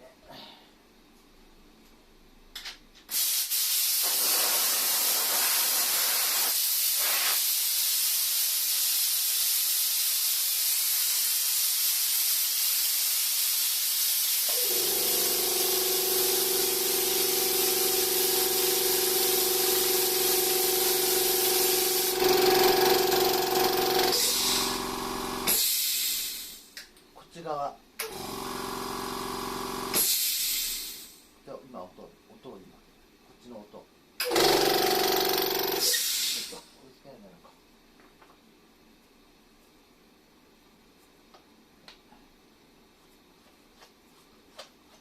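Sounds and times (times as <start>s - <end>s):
compressed air hissing: 3.1s - 22.2s, 24.1s - 26.7s, 29.9s - 31.2s, 35.8s - 36.7s
compressor motor humming: 14.5s - 25.6s, 28.0s - 30.1s.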